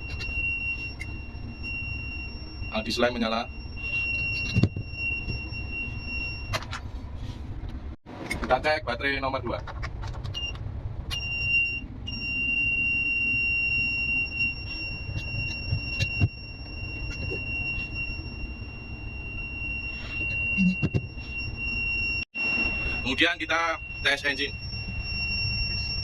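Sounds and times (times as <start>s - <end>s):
high-pitched alarm buzzer: 0.0s - 6.5s, 12.1s - 26.0s
low machinery rumble: 0.0s - 26.0s.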